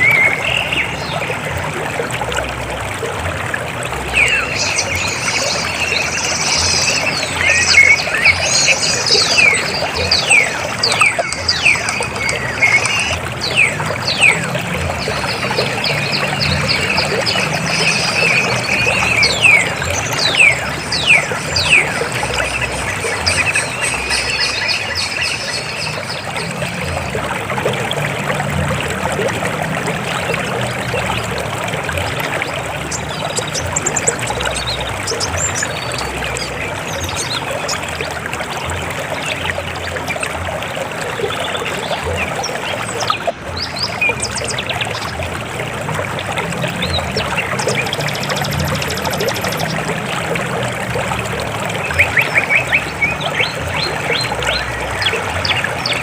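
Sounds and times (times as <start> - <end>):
river flowing over rocks: 0.0 - 56.0
bird high falling calls: 4.1 - 14.4.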